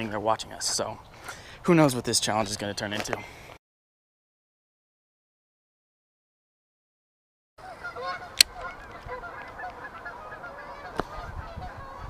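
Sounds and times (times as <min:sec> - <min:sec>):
geese honking: 0:07.6 - 0:12.0.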